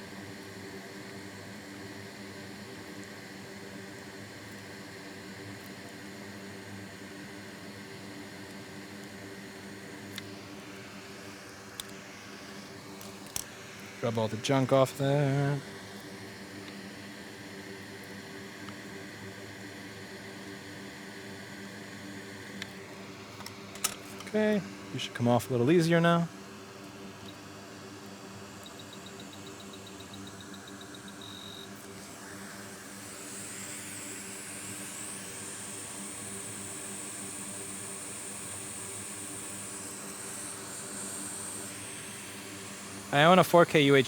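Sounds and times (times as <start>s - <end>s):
low electrical hum: 28.4s - 44.0s
high whine: 30.0s - 44.0s
hiss of blowing air: 31.9s - 44.0s.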